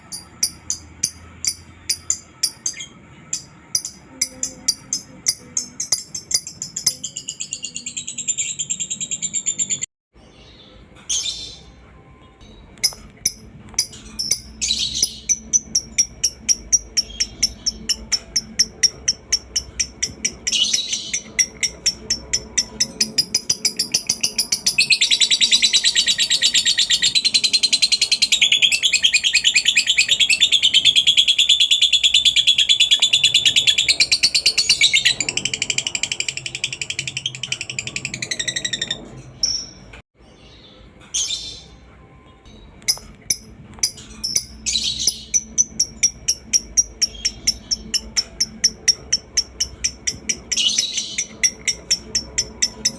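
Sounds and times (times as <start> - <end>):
lovebird chattering: 12.8 - 39.7, 42.9 - 52.9.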